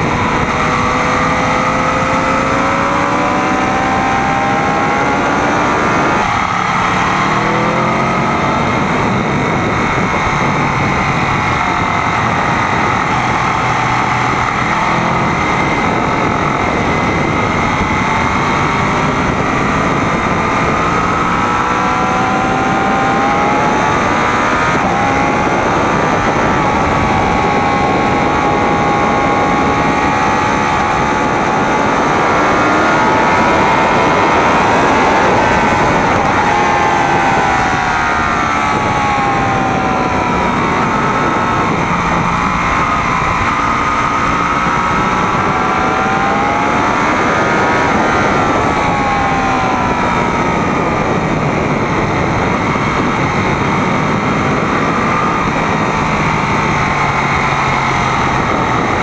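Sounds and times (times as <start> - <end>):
motorcycle engine running hard: 0.0 - 59.0
wind noise: 0.0 - 59.0.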